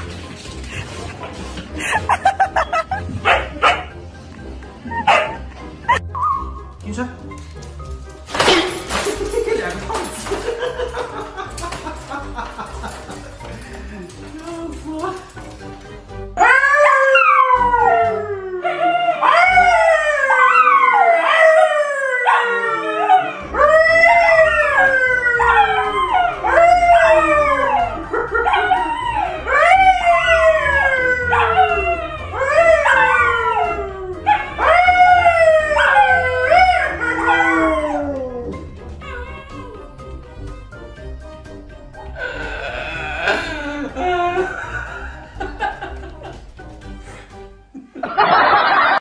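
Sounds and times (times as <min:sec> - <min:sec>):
dogs howling: 0:16.4 - 0:40.4
man howling: 0:42.2 - 0:45.0.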